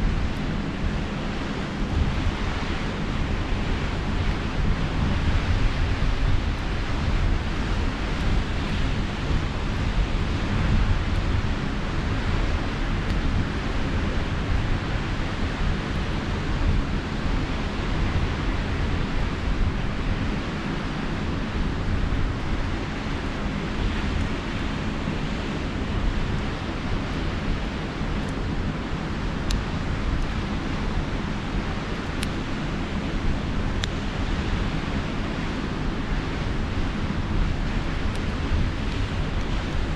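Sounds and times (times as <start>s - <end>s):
sea surf: 0.0s - 39.9s
wind rumbling on microphone: 0.0s - 39.9s
campfire crackling: 19.4s - 39.9s.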